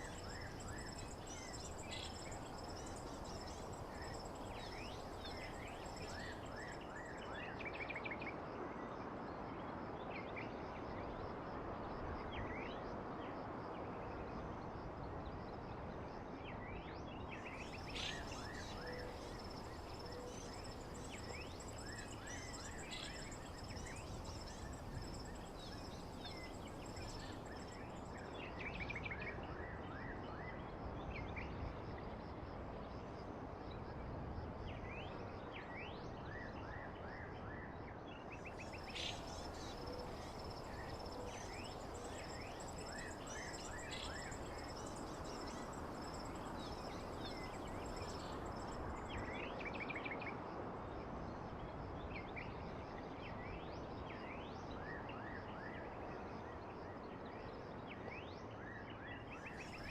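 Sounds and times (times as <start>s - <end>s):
insects buzzing: 17.8s - 28.0s, 38.6s - 48.9s
steady low hiss: 38.7s - 49.2s.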